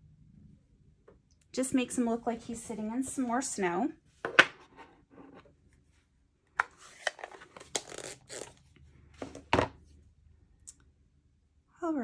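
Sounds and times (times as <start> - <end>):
knocks and clicks of craft blocks: 4.2 - 4.7.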